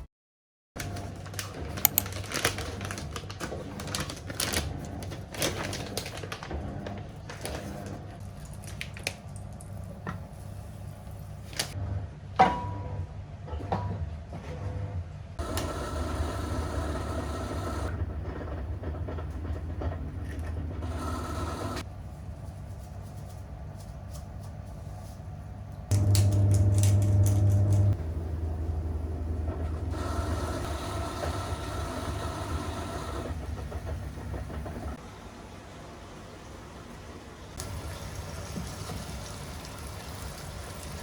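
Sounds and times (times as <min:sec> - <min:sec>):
low hum: 0:15.4 - 0:35.0.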